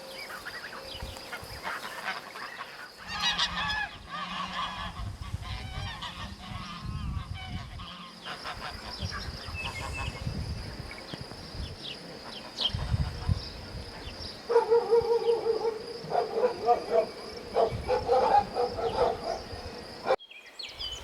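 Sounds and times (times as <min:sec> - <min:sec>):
farmyard bird calls: 0:00.0 - 0:21.0
steady held bird call: 0:14.5 - 0:20.2.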